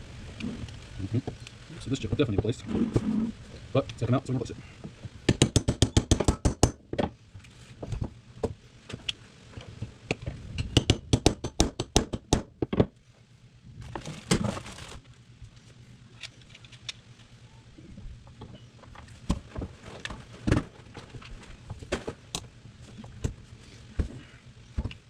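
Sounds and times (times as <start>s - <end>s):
scraping rustle: 0.3s - 5.1s, 13.8s - 24.8s.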